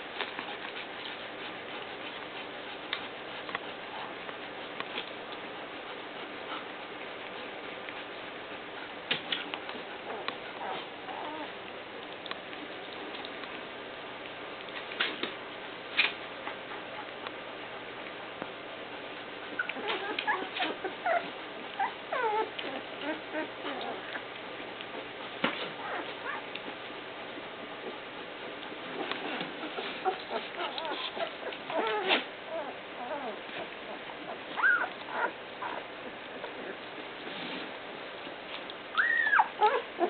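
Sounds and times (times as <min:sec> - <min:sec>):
puppies squeaking and whimpering: 0:10.0 - 0:11.6, 0:19.5 - 0:24.3, 0:25.8 - 0:26.6, 0:28.9 - 0:36.8, 0:38.9 - 0:40.0.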